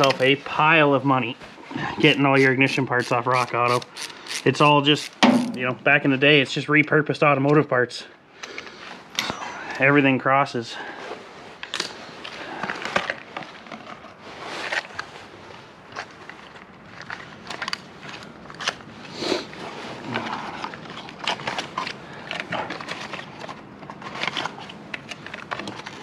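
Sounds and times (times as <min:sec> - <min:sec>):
clicks crackles and crunches: 0:11.6 - 0:26.0.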